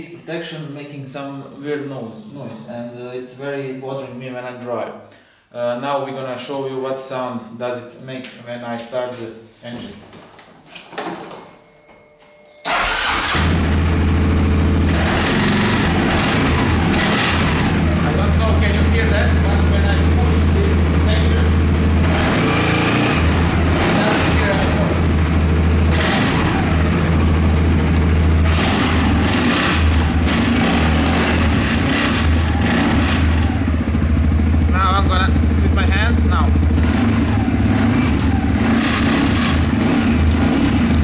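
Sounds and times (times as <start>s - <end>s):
engine starting: 12.6s - 13.9s
exhaust heat shield rattling: 12.7s - 40.5s
engine idling: 12.7s - 41.0s.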